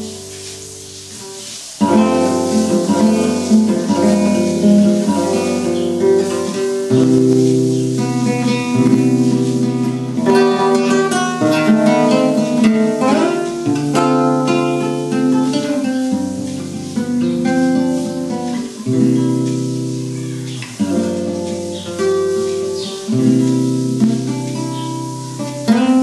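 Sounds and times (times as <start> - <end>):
solo acoustic guitar: 0.0 - 26.0.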